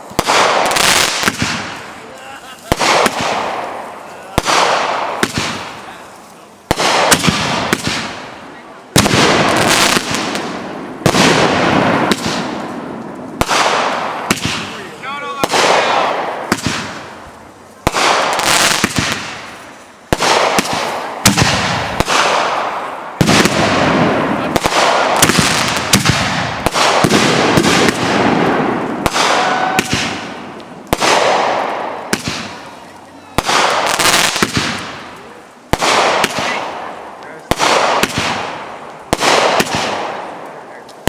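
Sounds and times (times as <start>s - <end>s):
fireworks crackling and fizzing: 0.0s - 41.0s
fireworks reports: 0.0s - 41.0s
small fireworks pops: 0.0s - 41.0s.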